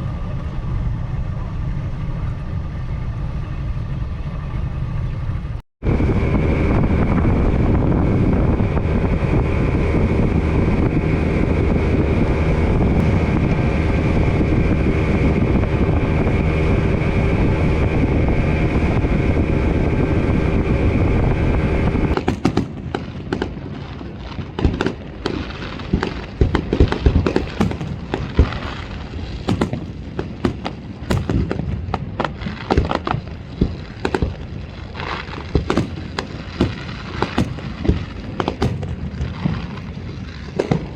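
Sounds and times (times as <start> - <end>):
boat engine running: 3.1 - 22.4.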